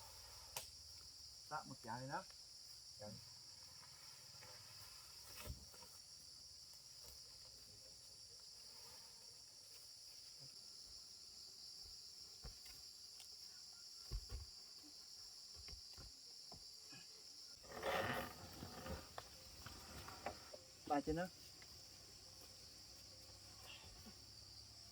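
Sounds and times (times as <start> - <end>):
high-pitched insect chorus: 0.0 - 24.9.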